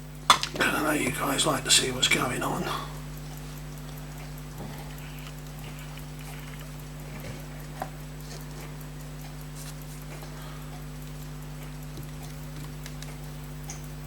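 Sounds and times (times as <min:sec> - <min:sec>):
electrical mains hum: 0:00.0 - 0:14.0
faint quick ticking: 0:00.6 - 0:14.0.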